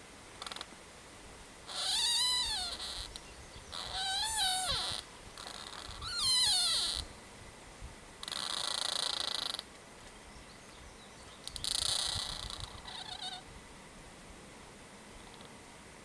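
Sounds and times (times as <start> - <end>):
tree creaking: 0.3 - 0.8, 1.6 - 7.2, 8.2 - 9.8, 11.4 - 13.5, 15.1 - 15.6.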